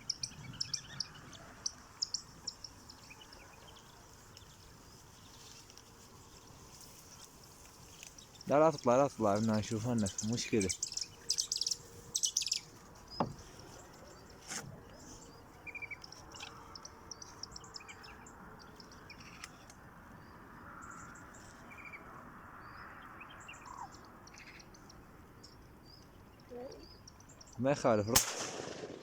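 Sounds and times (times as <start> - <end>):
small birds chirping: 0.0 - 28.2
faint outdoor hiss: 0.0 - 29.0
sharp click: 28.2 - 29.0.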